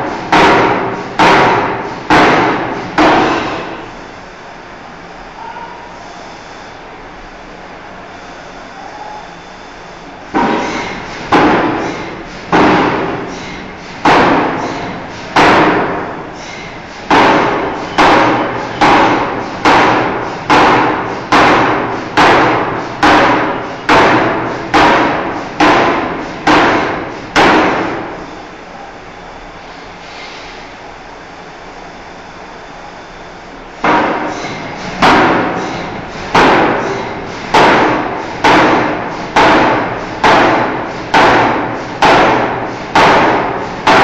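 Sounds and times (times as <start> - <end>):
forging hammer striking steel: 0.0 - 3.9, 10.3 - 28.2, 33.8 - 44.0
steady machine hum: 0.0 - 44.0.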